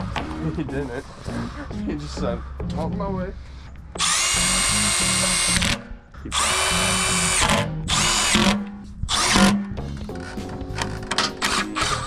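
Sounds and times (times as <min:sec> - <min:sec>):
power drill motor whining: 0:04.0 - 0:05.8.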